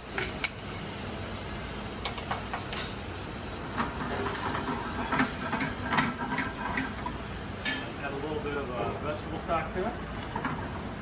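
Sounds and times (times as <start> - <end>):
rice sizzling in a pan: 3.0 - 8.0.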